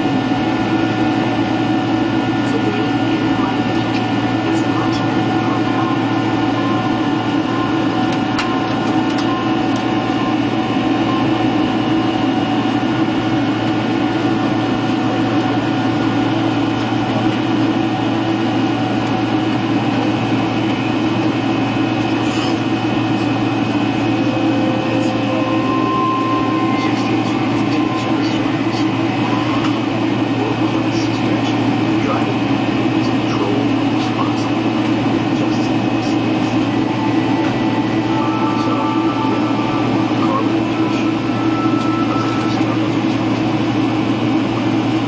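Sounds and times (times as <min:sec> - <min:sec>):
airliner cabin drone: 0:00.0 - 0:45.0
steady tones: 0:22.6 - 0:30.4.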